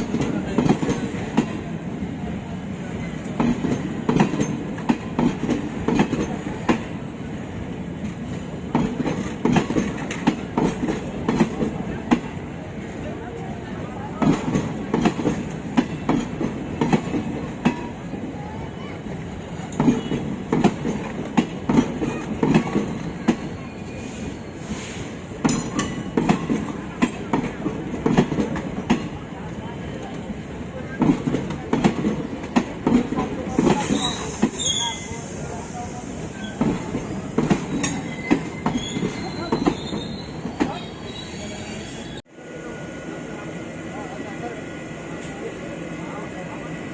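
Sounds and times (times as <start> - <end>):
train wheels clacking over rail joints: 0.0 - 1.7, 3.1 - 7.0, 8.0 - 12.4, 14.2 - 18.0, 19.2 - 23.6, 24.8 - 29.2, 30.9 - 35.4, 36.5 - 40.8
steady train rumble: 0.0 - 46.9
faint high wheel squeal: 22.2 - 26.0, 33.6 - 42.2.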